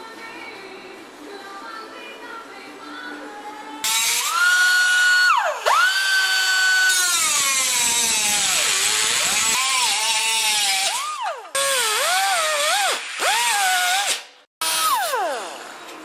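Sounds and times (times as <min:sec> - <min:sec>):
power tool cutting sheet metal: 0:03.8 - 0:16.0.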